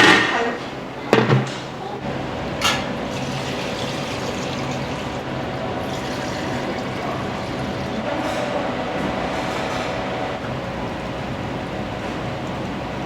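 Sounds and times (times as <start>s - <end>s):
kitchen noise rush: 0.0s - 10.4s.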